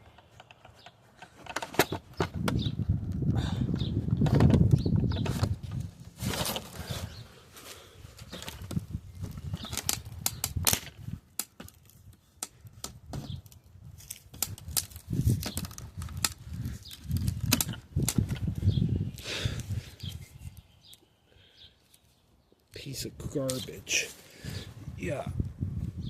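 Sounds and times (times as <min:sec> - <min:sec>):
plastic cracking and snapping: 0:08.2 - 0:18.5.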